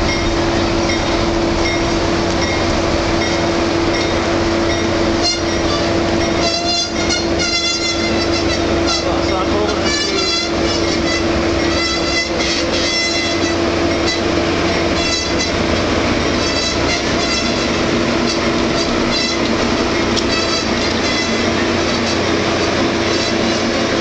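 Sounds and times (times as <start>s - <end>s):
train rumbling past: 0.0s - 24.0s
high-pitched wheel squeals: 4.7s - 14.3s, 14.9s - 15.6s, 16.3s - 19.6s, 20.2s - 22.3s, 23.1s - 23.8s.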